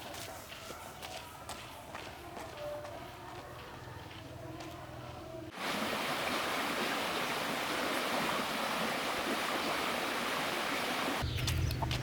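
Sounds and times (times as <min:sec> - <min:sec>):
running water rushing: 0:05.5 - 0:11.2.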